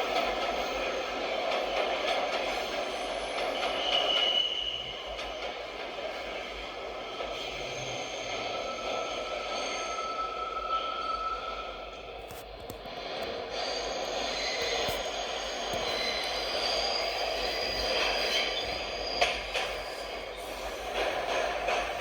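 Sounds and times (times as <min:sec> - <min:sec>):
subway train wheels clattering: 0:00.0 - 0:22.0
high wheel squeal: 0:02.5 - 0:05.4, 0:07.3 - 0:12.1, 0:13.5 - 0:22.0.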